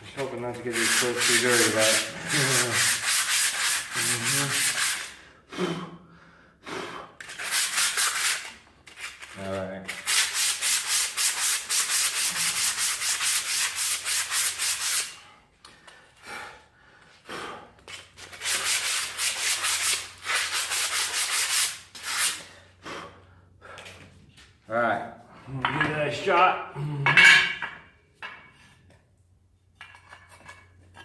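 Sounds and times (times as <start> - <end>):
hand sanding strokes: 0.2 - 5.2, 7.2 - 15.3, 18.0 - 22.6.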